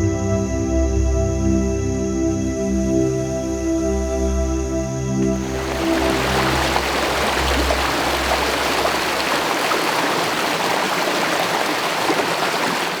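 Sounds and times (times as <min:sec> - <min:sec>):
background music: 0:00.0 - 0:09.3
stream water rushing: 0:05.4 - 0:13.0.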